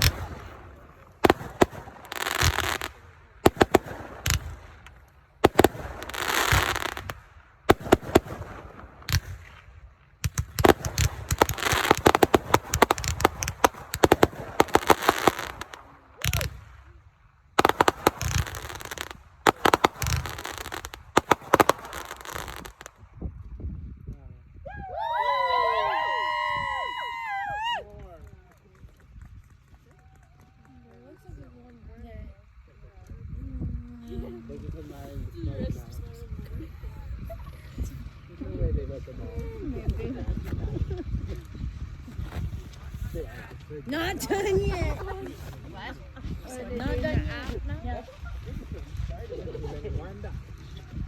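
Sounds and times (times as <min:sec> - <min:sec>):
fireworks hissing: 0:00.0 - 0:17.0, 0:17.6 - 0:23.0
fireworks bangs and crackling: 0:00.0 - 0:23.3, 0:38.9 - 0:51.0.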